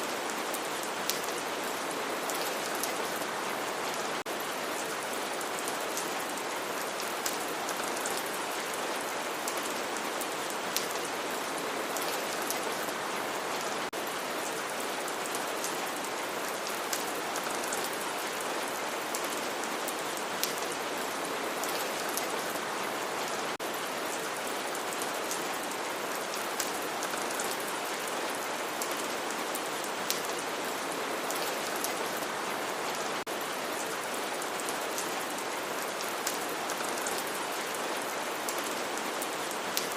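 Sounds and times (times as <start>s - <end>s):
steady rain hissing: 0.0s - 39.9s
raindrops ticking on a surface: 0.2s - 1.4s, 28.6s - 30.5s.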